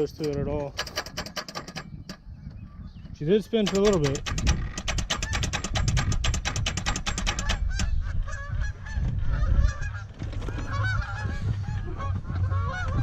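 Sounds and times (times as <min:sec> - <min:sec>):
starter motor cranking clatter: 0:00.0 - 0:02.2, 0:03.6 - 0:07.8
straining starter squeaks: 0:00.0 - 0:08.0
low hum: 0:08.0 - 0:13.0.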